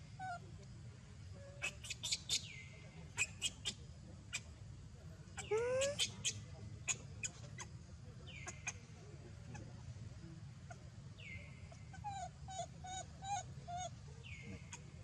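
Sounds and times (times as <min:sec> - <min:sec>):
faint animal calls: 0:01.3 - 0:04.6, 0:05.3 - 0:09.8, 0:10.6 - 0:15.0.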